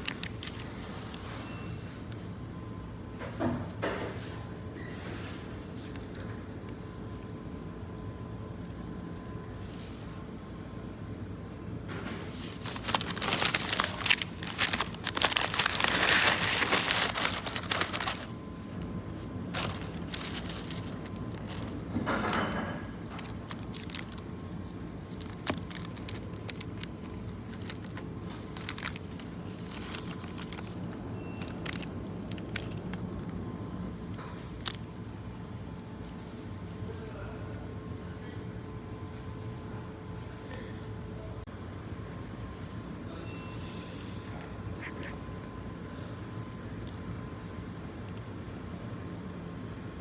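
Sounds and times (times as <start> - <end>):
rustling and crinkling handling noise: 0.0 - 2.6, 5.5 - 37.1
steady low cabin hum: 6.4 - 38.9.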